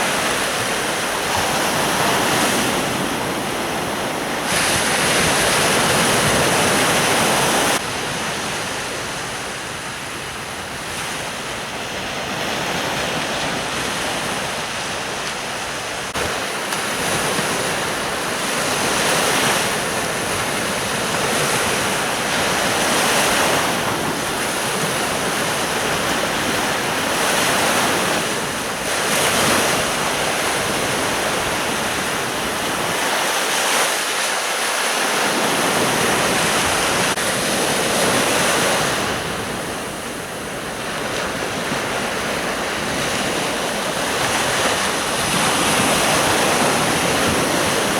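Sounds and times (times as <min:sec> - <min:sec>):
surf breaking on a beach: 0:00.0 - 0:47.9
wind buffeting the microphone: 0:35.1 - 0:47.9.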